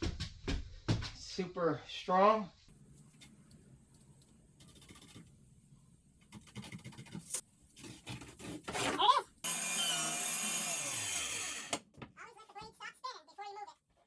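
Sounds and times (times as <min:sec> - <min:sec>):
power saw cutting wood: 0:09.4 - 0:11.8.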